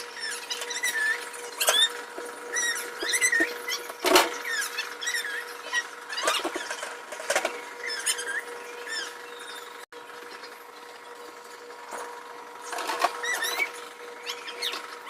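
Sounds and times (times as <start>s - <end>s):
steady hum: 0.0s - 15.0s
squeaks of fridge parts wiped: 12.9s - 14.8s.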